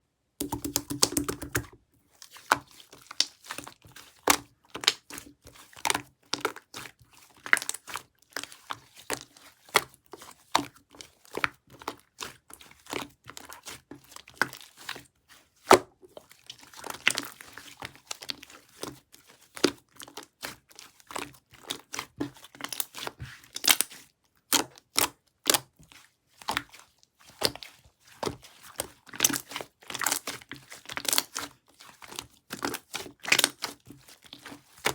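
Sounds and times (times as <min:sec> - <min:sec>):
slime popping and clicking: 0:00.4 - 0:01.8
hands squishing slime: 0:00.4 - 0:05.9, 0:24.9 - 0:34.9.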